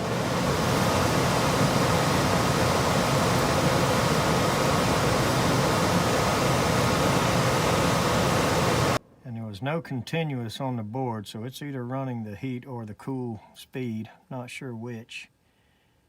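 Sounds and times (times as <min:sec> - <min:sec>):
furnace blower running: 0:00.0 - 0:09.0.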